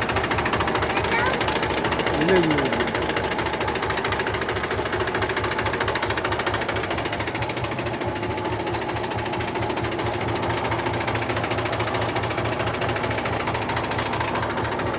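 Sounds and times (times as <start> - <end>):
tractor diesel engine clattering: 0.0 - 14.9.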